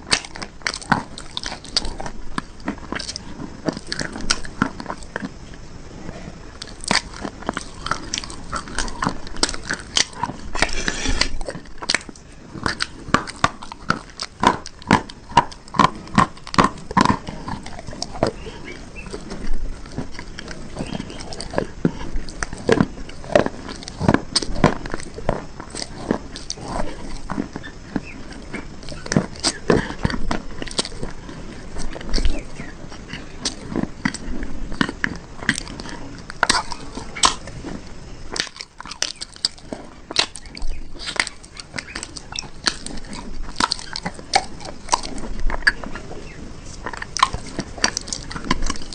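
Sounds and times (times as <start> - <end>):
crunching hard brittle bars: 0.0 - 5.4, 6.6 - 48.9
sharp cracks of pieces snapping: 0.1 - 2.0, 38.4 - 45.8.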